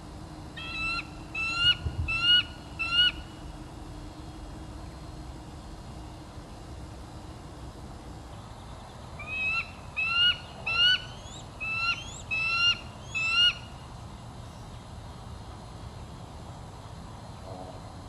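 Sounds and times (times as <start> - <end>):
bird calling: 0.6 - 3.4, 8.3 - 13.8.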